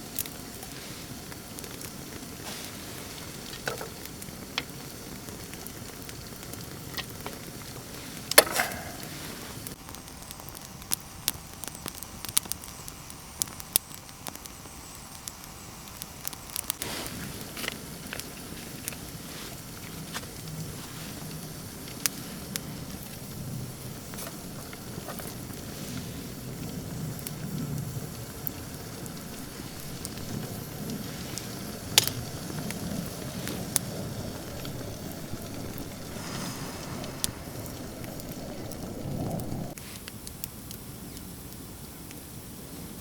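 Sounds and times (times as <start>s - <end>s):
campfire rushing and crackling: 0.0s - 43.0s
loud fire pop: 35.4s - 39.8s.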